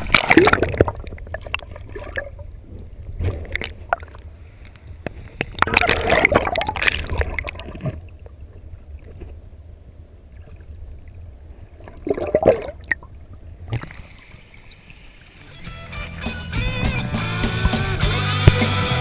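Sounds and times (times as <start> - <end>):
loud water splash: 0.0 - 0.9.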